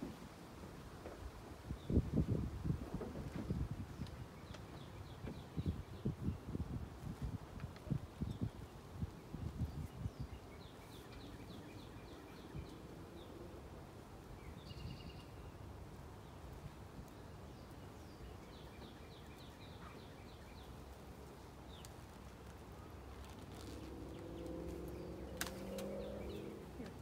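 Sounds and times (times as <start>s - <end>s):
songbird singing: 3.0s - 27.0s
honeybees humming: 23.5s - 27.0s.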